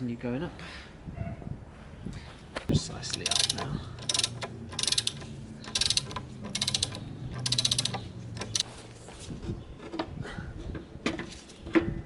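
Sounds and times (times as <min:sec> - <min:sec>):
ratchet clicking: 0:03.1 - 0:08.6.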